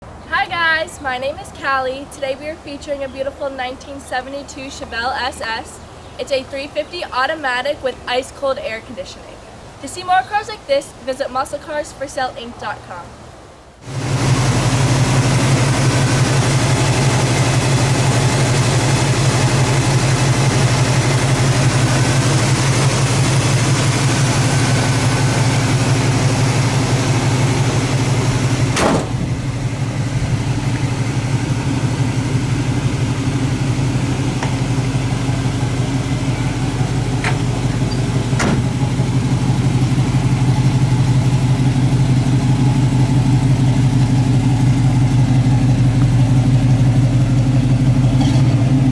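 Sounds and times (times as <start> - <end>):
car engine idling: 13.8 - 48.9.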